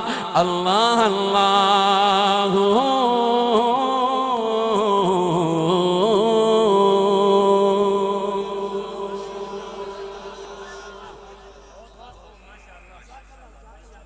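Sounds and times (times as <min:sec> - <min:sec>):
man singing unaccompanied: 0:00.0 - 0:14.0.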